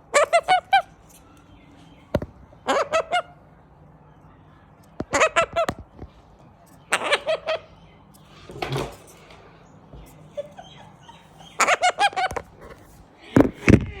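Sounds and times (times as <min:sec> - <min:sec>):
cockatoo squawking: 0:00.0 - 0:01.0, 0:02.6 - 0:03.4, 0:05.0 - 0:05.8, 0:06.8 - 0:07.8, 0:10.1 - 0:13.0.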